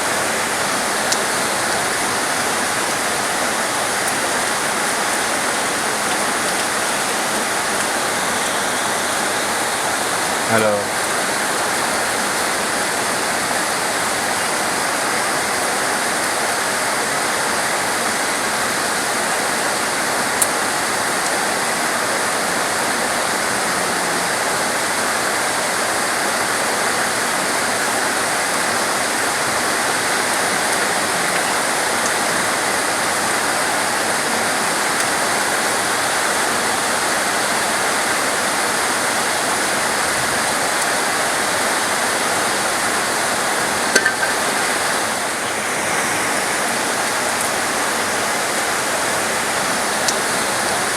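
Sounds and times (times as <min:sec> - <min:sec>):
heavy rainfall: 0:00.0 - 0:50.9.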